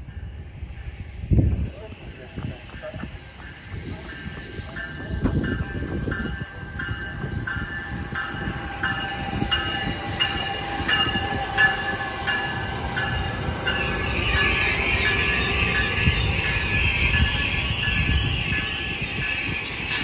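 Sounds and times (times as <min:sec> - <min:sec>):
train rumble: 0:00.0 - 0:20.0
locomotive bell ringing: 0:01.7 - 0:20.0.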